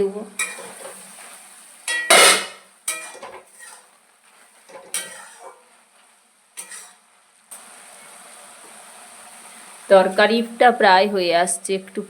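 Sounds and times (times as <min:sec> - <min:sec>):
food sizzling: 0:00.0 - 0:12.0
utensil scraping a pan: 0:00.4 - 0:07.0
loud metal clank: 0:01.9 - 0:02.6.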